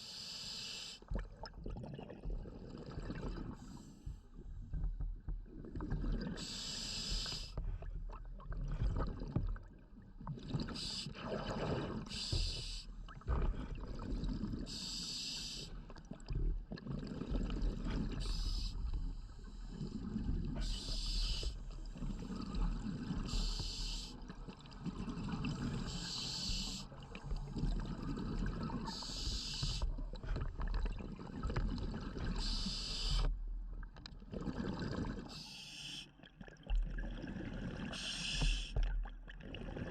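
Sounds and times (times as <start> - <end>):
exhaled bubbles underwater: 1.0 - 39.9
diver breathing through regulator: 6.4 - 7.6, 14.7 - 15.8, 18.0 - 24.3, 25.4 - 30.6, 32.3 - 33.4, 35.3 - 36.2, 37.4 - 38.8.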